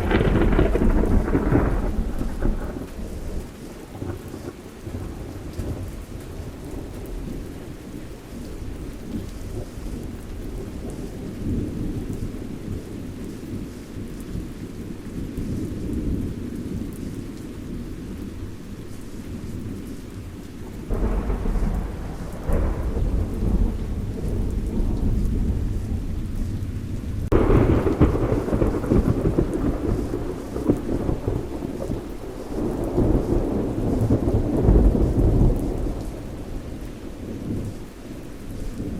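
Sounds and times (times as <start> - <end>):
thunderclaps: 0.0 - 7.4, 20.2 - 37.8
thunder rumbling: 0.0 - 7.7, 8.4 - 38.9
steady rain: 0.0 - 38.9.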